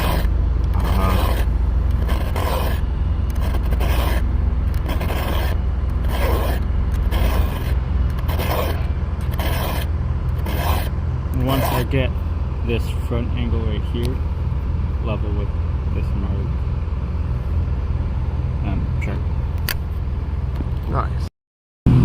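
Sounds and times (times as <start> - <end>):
file rasping on chainsaw chain: 0.0 - 2.8, 3.4 - 4.2, 4.8 - 11.9
steady low rumble: 0.0 - 21.3.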